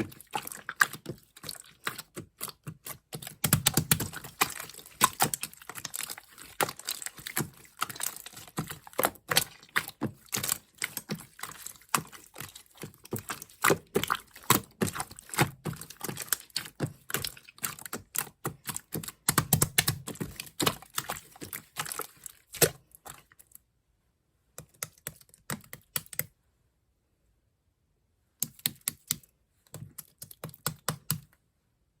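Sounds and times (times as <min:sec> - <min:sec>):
slime clicking and popping: 0:00.6 - 0:21.3.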